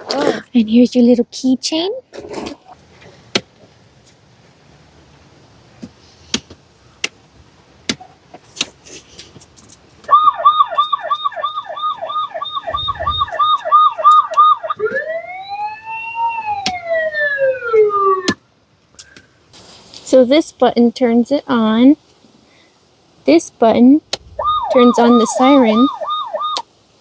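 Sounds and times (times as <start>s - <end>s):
toy electronic siren: 10.1s - 18.4s, 24.4s - 26.6s.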